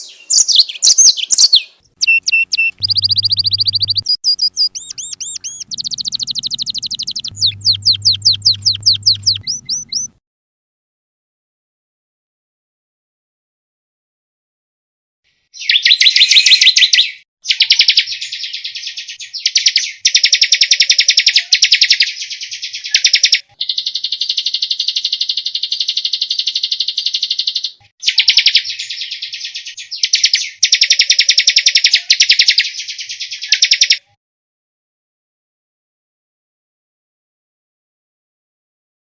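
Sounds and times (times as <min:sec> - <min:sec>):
songbird trilling: 0:00.0 - 0:10.2, 0:15.6 - 0:34.0
buzzing bird trill: 0:02.0 - 0:10.1.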